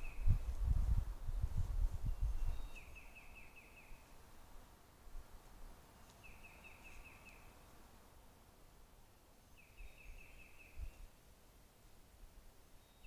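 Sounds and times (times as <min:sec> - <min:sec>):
faint outdoor background: 0:00.0 - 0:13.0.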